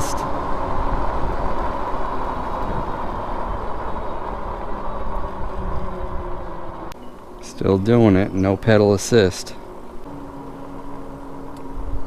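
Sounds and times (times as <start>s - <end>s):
bike riding noise: 0.0s - 12.0s.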